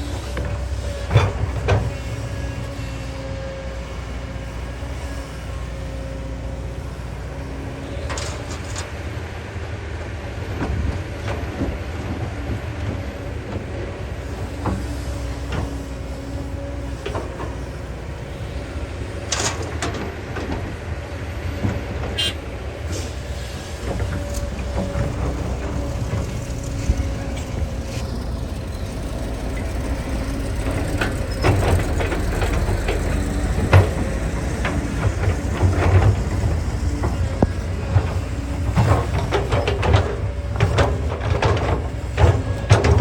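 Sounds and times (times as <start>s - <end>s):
excavator diesel engine rumbling: 0.0s - 43.0s
excavator bucket knocks and clanks: 0.3s - 2.1s, 30.6s - 43.0s.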